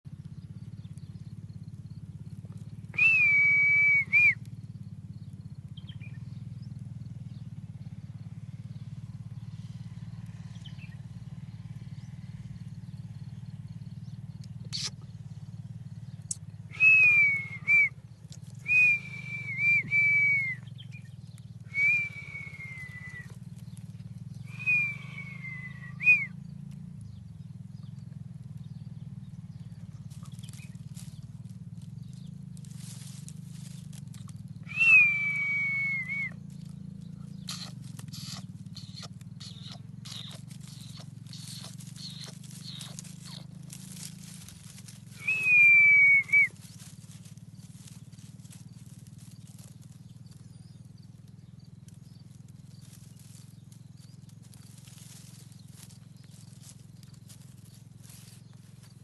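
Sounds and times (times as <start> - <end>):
steady low hum: 0.1 - 59.0
parrot whistling: 45.2 - 46.5.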